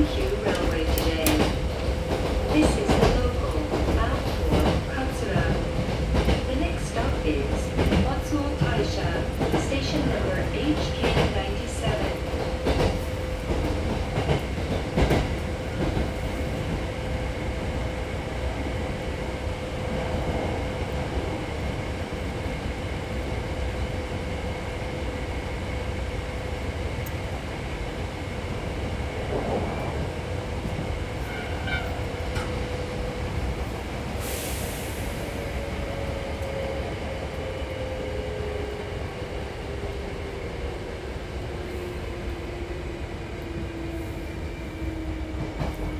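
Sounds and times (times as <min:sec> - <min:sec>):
rail-joint clicks: 0:00.0 - 0:16.8, 0:28.7 - 0:34.7
constant train hum: 0:00.0 - 0:45.9
train wheels rumbling on rail: 0:00.0 - 0:45.9.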